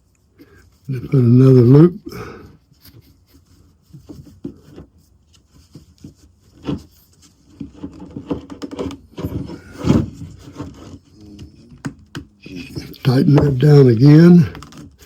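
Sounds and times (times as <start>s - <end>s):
small knocks: 5.7s - 13.7s.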